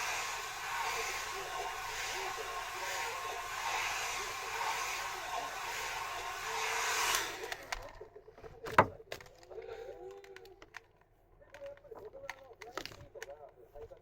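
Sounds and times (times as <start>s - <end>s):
hair dryer blowing: 0.0s - 7.7s.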